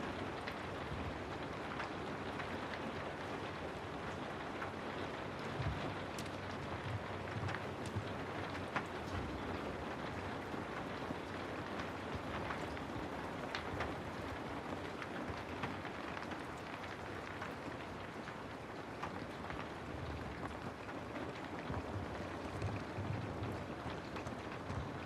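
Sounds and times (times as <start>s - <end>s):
steady rain hiss: 0.0s - 25.0s
water drips ticking: 5.4s - 10.2s.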